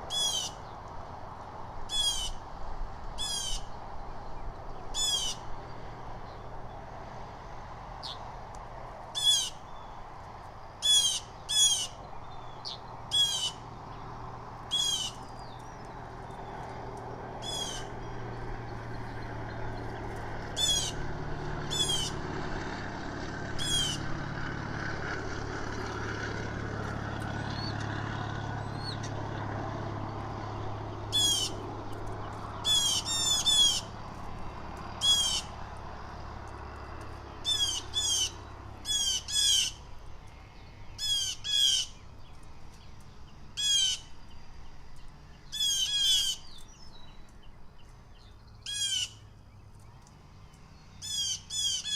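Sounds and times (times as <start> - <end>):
blue jays calling: 0.0 - 0.6, 1.9 - 2.4, 5.0 - 5.5, 9.2 - 9.8, 10.8 - 13.8, 14.7 - 16.6, 17.3 - 22.5, 23.5 - 24.2, 30.8 - 36.1, 37.0 - 39.9, 41.0 - 42.1, 43.6 - 44.3, 45.5 - 46.8, 48.6 - 49.2, 51.0 - 51.9.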